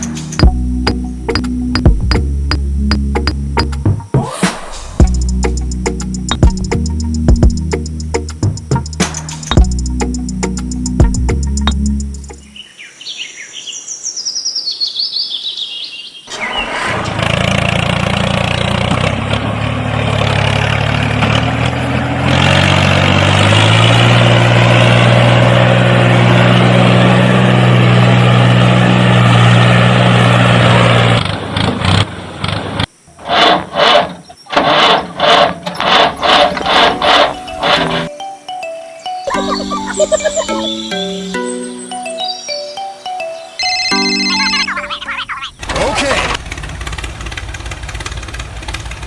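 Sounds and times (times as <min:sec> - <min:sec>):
rhythmic knocks: 0:00.0 - 0:04.2, 0:05.0 - 0:12.5
tractor engine running: 0:00.0 - 0:12.5, 0:16.3 - 0:38.1, 0:44.3 - 0:49.0.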